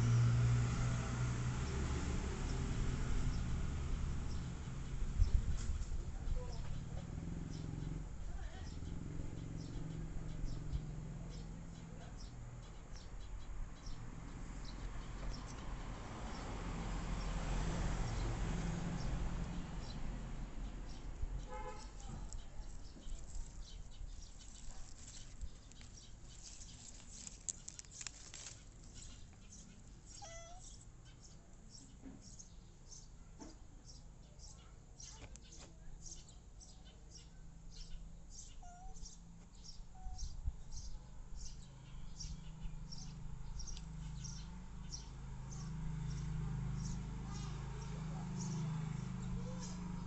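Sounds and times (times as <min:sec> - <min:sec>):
small birds chirping: 0:01.6 - 0:50.0.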